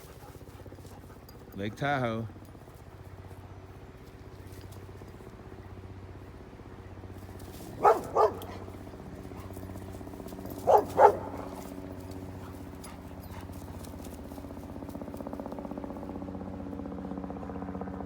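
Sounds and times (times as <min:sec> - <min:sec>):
steady low hum: 0:00.0 - 0:18.0
dog barking: 0:07.7 - 0:08.8, 0:10.6 - 0:11.7.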